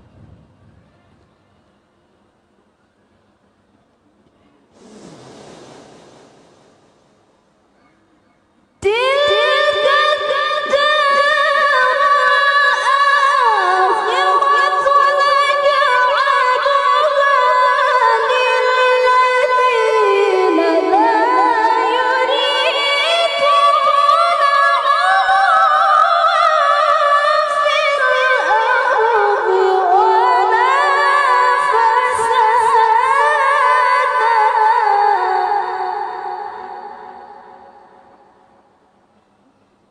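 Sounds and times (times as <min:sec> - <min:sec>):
woman reciting melodically: 0:08.8 - 0:38.0.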